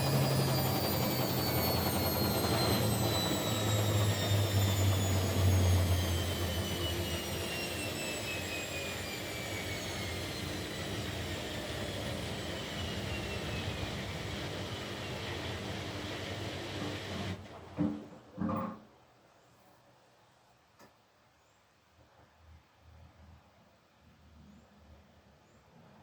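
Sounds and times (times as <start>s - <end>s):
washing machine low hum: 0.0s - 17.8s
washing machine motor whine: 0.0s - 17.9s.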